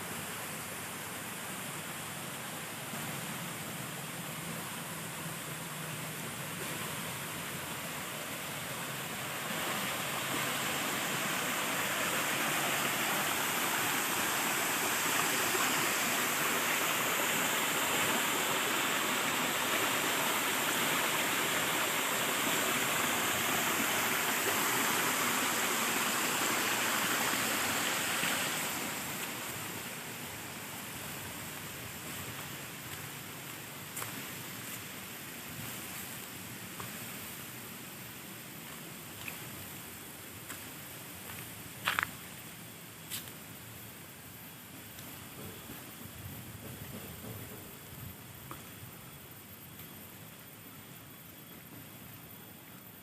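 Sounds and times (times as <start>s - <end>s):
flowing water rushing: 0.0s - 41.8s.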